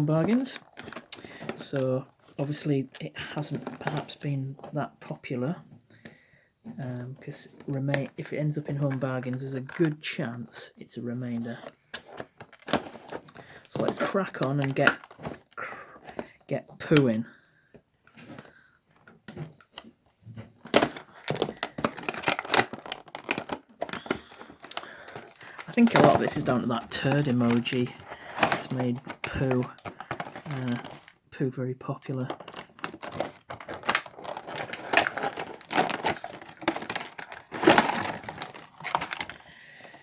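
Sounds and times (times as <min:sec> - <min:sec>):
packaging crackling and tearing: 0:12.0 - 0:15.4, 0:20.7 - 0:31.2, 0:32.2 - 0:40.0.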